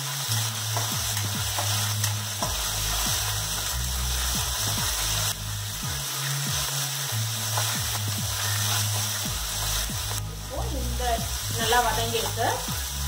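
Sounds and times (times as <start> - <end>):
spices sizzling in hot oil: 0.0 - 13.0
spatula scraping a pan: 0.1 - 5.3, 7.4 - 9.9.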